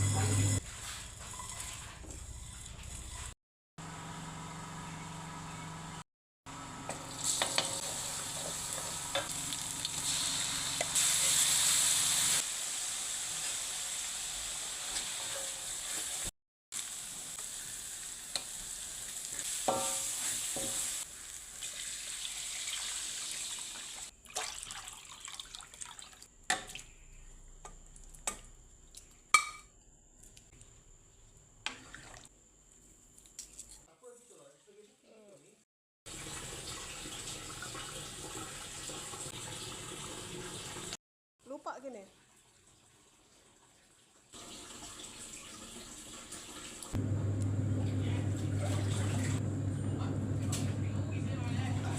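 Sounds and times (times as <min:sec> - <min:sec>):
food sizzling in hot oil: 0:06.9 - 0:24.2.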